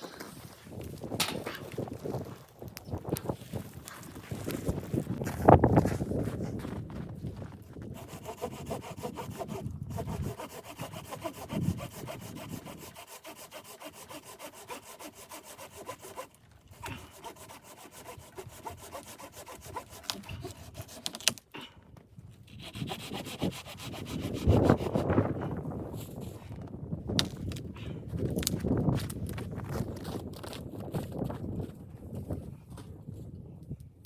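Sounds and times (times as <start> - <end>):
saw cutting through wood: 7.8 - 21.4, 22.5 - 25.2.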